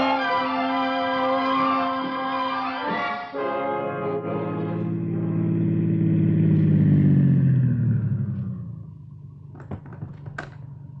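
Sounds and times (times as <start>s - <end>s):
car engine slowing and idling: 4.2s - 11.0s.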